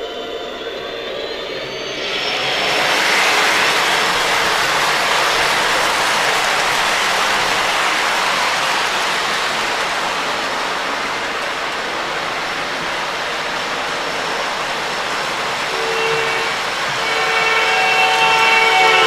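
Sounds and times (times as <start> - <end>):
held tone: 0.0 - 6.6
model train rumbling on track: 0.0 - 19.0.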